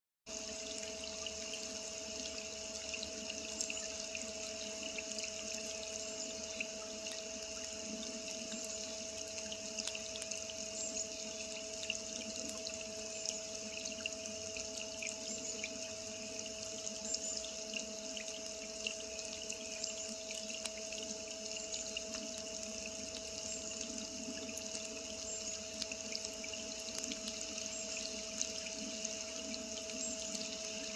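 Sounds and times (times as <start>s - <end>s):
faint steady hum: 0.3s - 30.9s
rain pattering on water: 20.5s - 21.2s, 21.8s - 30.9s.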